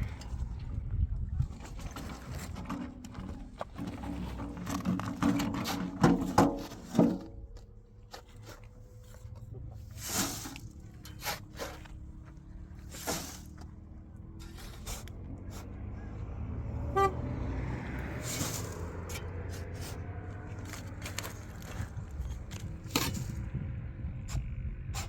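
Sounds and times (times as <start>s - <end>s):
vehicle engine rumbling: 0.0s - 25.0s
short horn toot: 16.8s - 17.4s.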